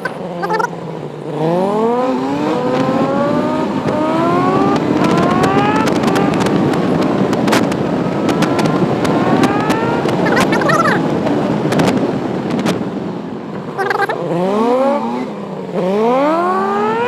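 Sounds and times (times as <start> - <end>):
motorcycle engine accelerating: 0.0 - 12.9, 13.6 - 17.0
wind rush: 4.6 - 12.9
sharp clicks or pops: 7.4 - 11.0.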